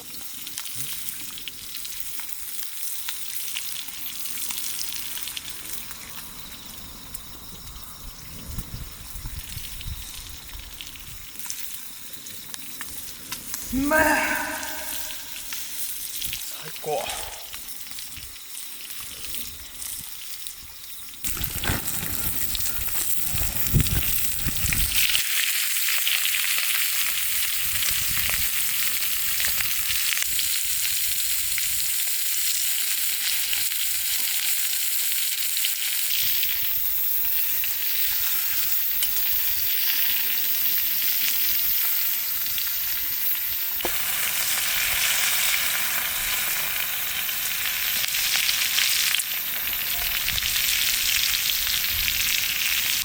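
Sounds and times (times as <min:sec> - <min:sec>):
food sizzling over campfire: 0:00.0 - 0:53.0.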